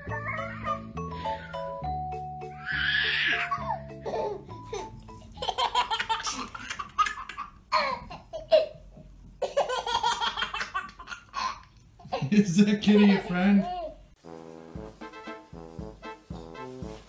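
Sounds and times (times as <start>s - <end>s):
light background music: 0.0s - 6.9s, 14.1s - 17.0s
baby laughing: 2.5s - 8.8s, 9.4s - 14.0s.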